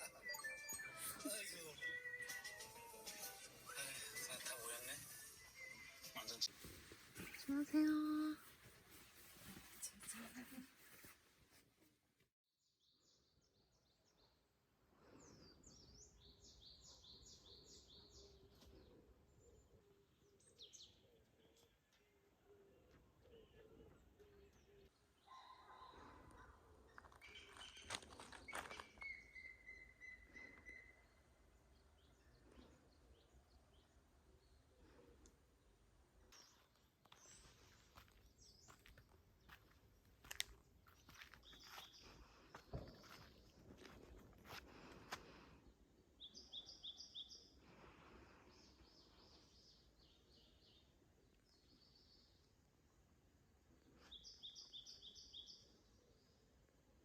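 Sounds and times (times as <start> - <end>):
small songbird singing faintly: 15.2 - 25.8, 26.4 - 39.7, 46.0 - 47.6, 48.5 - 53.1, 53.8 - 56.7.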